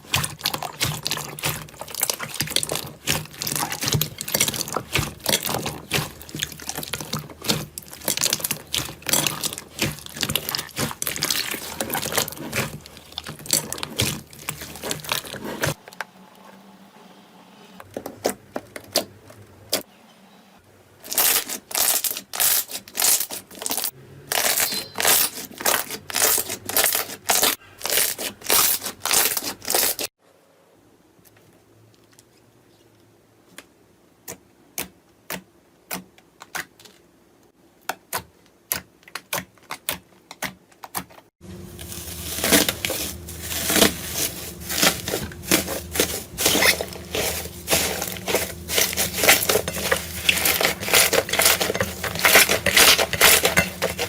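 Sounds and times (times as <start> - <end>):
rhythmic slime presses: 0.0 - 15.8
slime crackling and popping: 0.0 - 15.8, 41.7 - 54.0.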